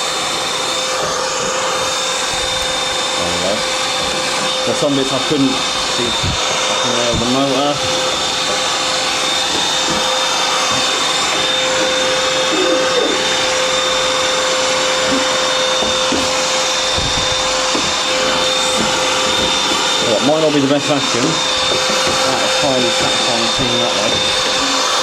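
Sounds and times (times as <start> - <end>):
vacuum cleaner whining: 0.0 - 25.0
knocks and rattles: 14.9 - 20.0.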